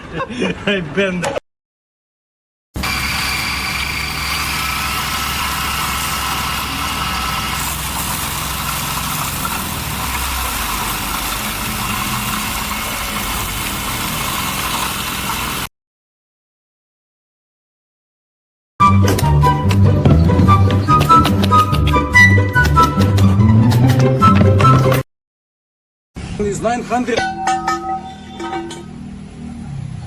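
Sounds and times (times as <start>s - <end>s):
engine running with high whine: 2.8s - 14.0s.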